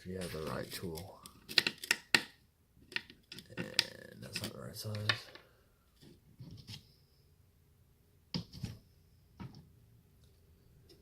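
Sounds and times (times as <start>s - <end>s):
small tools clicking and clattering: 0.2s - 5.4s.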